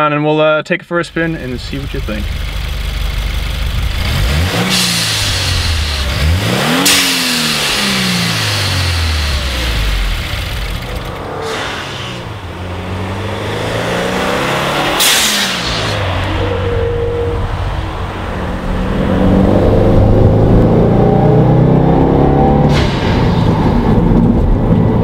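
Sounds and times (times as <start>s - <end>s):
car engine accelerating: 1.1s - 25.0s
blow-off valve whoosh: 4.6s - 9.9s, 11.2s - 12.6s, 14.4s - 18.2s, 22.5s - 24.0s.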